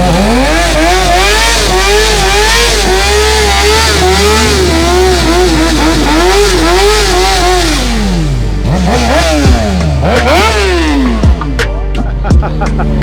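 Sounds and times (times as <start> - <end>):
engine revving: 0.0 - 13.0.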